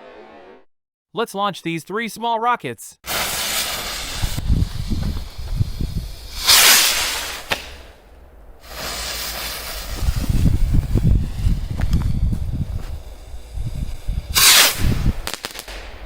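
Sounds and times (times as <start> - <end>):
firework crack: 3.0 - 16.0
firework rocket launch hiss: 3.1 - 8.0, 8.6 - 16.0.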